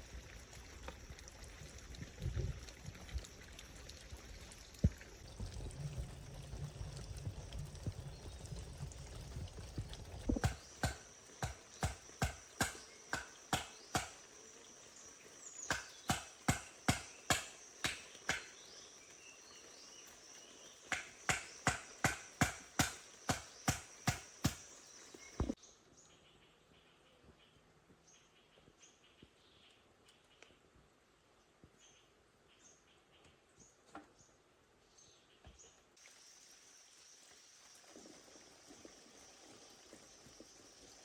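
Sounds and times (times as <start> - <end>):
faint forest sounds: 0.0 - 41.0
sharp chopping blows: 10.3 - 14.2, 15.7 - 18.5, 20.9 - 24.6
high insect trill: 10.3 - 25.6, 36.0 - 41.0.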